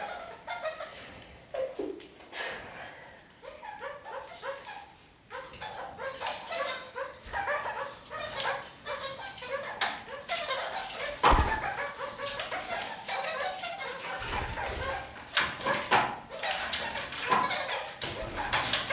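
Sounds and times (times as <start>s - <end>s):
parakeet chattering calls: 5.6s - 15.1s.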